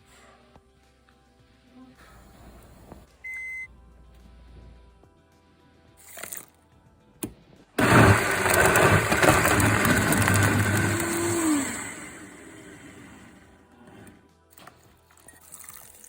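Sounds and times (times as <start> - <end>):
electric blender running: 7.8 - 14.2.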